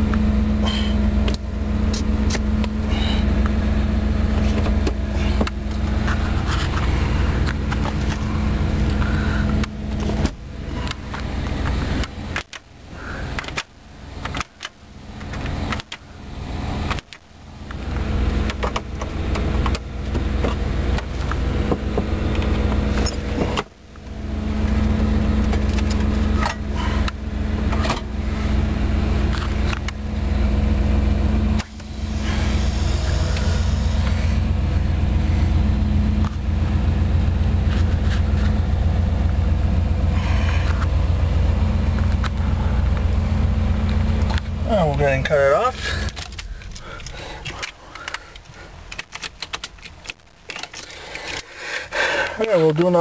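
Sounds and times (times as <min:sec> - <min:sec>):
car engine idling hum: 0:00.0 - 0:53.0
clatter and handling noise: 0:04.3 - 0:12.7, 0:25.4 - 0:28.1, 0:37.6 - 0:39.4, 0:45.7 - 0:51.6.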